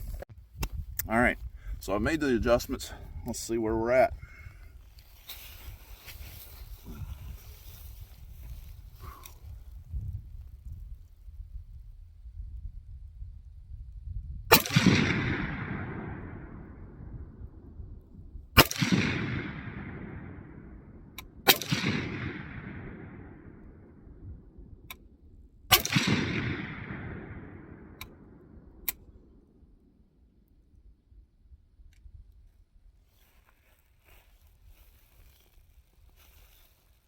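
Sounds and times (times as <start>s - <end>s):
rifle shots with rumble: 14.5s - 25.0s, 25.7s - 29.5s.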